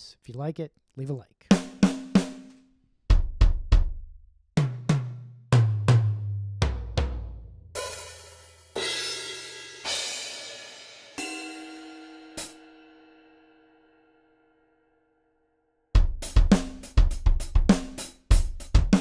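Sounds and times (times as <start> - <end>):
bass drum kicks: 3.1 - 7.5
cymbal strikes ringing: 7.8 - 13.9.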